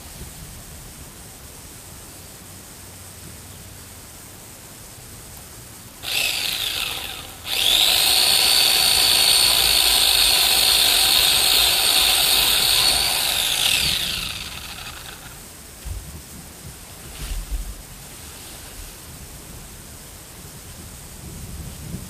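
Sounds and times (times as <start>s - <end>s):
electric chainsaw whining: 6.0s - 15.5s.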